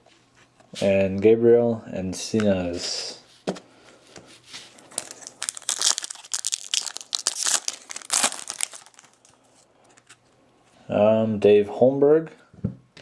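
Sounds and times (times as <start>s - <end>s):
foil wrapper crinkling and tearing: 4.8s - 9.4s.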